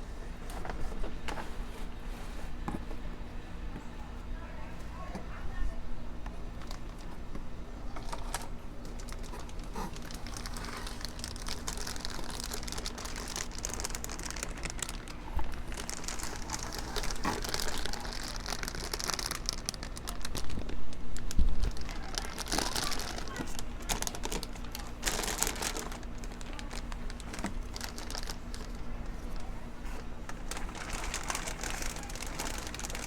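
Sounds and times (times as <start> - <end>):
packaging crinkling: 7.9 - 33.0.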